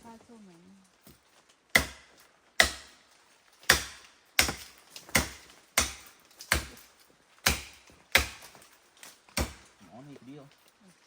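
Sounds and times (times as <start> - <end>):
blade chopping into wood: 1.1 - 3.0, 3.6 - 8.6, 9.3 - 9.7.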